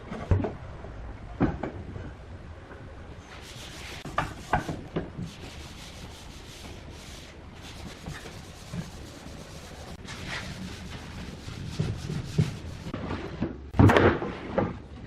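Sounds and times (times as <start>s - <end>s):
rubbing and scraping on wood: 3.3s - 13.0s.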